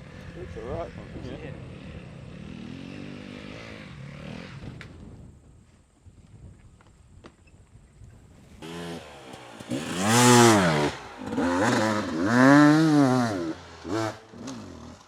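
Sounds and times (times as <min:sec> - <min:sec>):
dirt bike engine revving: 0:01.6 - 0:04.9, 0:08.4 - 0:15.0.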